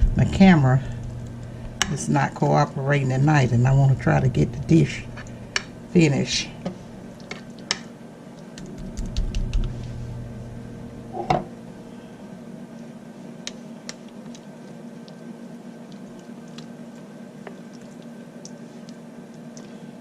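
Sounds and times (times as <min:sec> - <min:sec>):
steady low hum: 0:00.0 - 0:20.0
spoon squishing thick sauce: 0:12.8 - 0:19.7.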